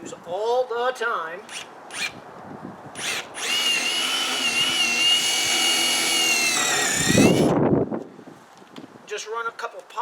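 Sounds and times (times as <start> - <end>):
power drill whining: 1.5 - 2.2, 3.0 - 7.6
drill bit grinding into wood: 3.0 - 7.6.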